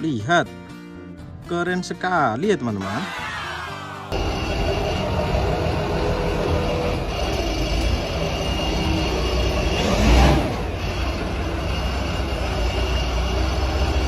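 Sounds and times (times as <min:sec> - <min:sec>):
vehicle rumbling: 0:04.1 - 0:14.0.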